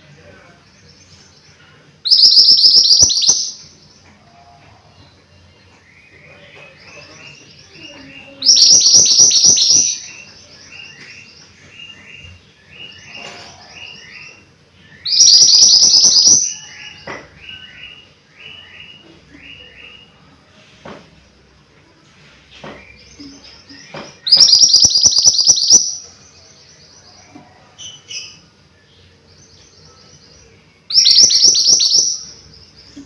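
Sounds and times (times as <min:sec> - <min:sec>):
bird chattering: 0:02.1 - 0:03.6, 0:08.0 - 0:10.2, 0:15.1 - 0:16.7, 0:24.2 - 0:26.0, 0:30.9 - 0:32.4
songbird whistling: 0:02.1 - 0:03.6, 0:14.9 - 0:19.0, 0:23.9 - 0:26.0, 0:30.9 - 0:32.4.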